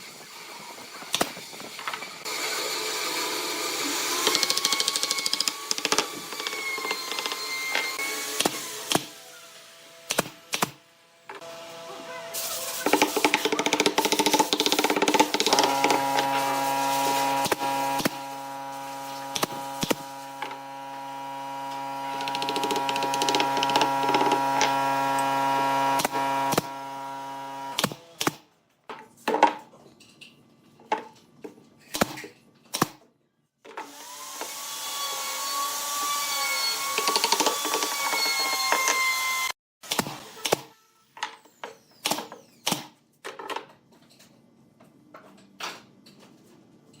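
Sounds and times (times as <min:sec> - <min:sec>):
power tool working wood: 0:12.8 - 0:27.9, 0:33.8 - 0:39.6
power tool spinning up with whine: 0:14.9 - 0:27.8, 0:33.9 - 0:39.6.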